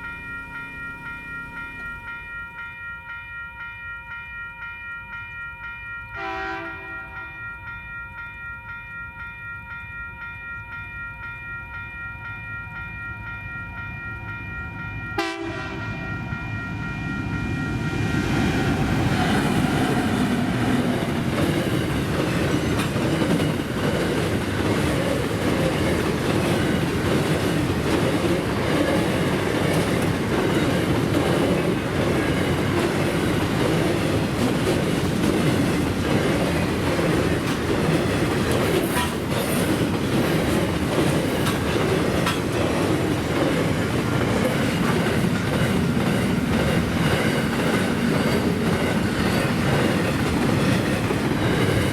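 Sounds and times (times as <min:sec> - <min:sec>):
freight train wheels clattering: 0:17.7 - 0:51.9.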